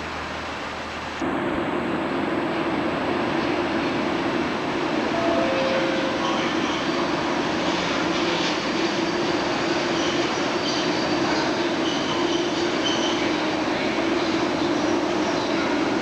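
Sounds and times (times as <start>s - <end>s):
train rumbling: 0.0s - 16.0s
wheels squealing on rails: 5.0s - 16.0s.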